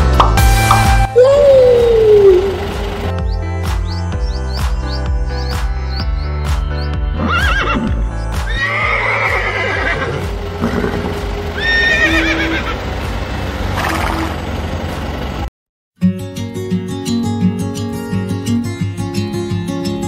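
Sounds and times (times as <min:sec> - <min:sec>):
background music with steady beat: 0:00.0 - 0:11.5
horse whinnying: 0:07.2 - 0:11.0, 0:11.6 - 0:12.8.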